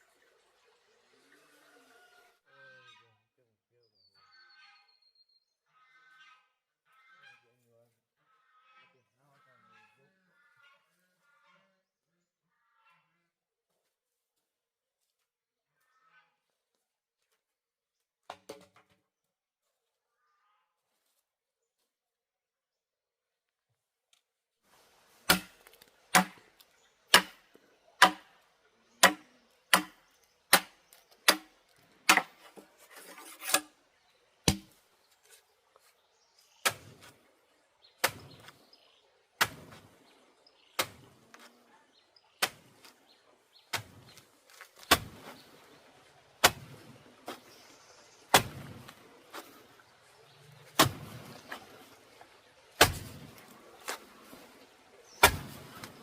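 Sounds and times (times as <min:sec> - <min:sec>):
sharp chopping strikes: 0:25.3 - 0:26.4, 0:27.1 - 0:27.4, 0:28.0 - 0:28.3, 0:29.0 - 0:31.5, 0:32.1 - 0:32.4, 0:34.5 - 0:34.7, 0:48.3 - 0:48.8, 0:50.8 - 0:51.1, 0:52.8 - 0:53.2, 0:55.2 - 0:56.0.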